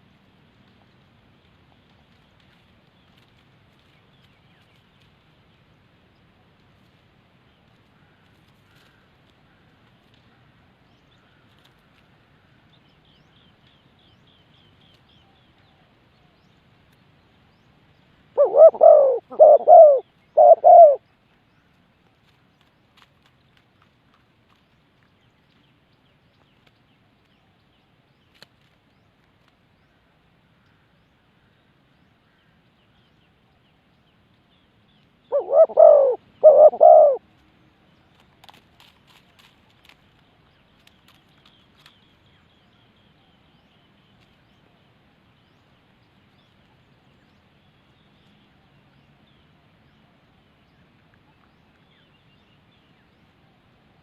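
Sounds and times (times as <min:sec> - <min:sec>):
faint light ticks: 0:00.1 - 0:05.7, 0:06.5 - 0:07.0, 0:07.6 - 0:13.8, 0:16.8 - 0:17.1, 0:21.6 - 0:27.4, 0:28.2 - 0:29.8, 0:37.3 - 0:42.2
dove cooing: 0:18.4 - 0:21.0, 0:35.3 - 0:37.2.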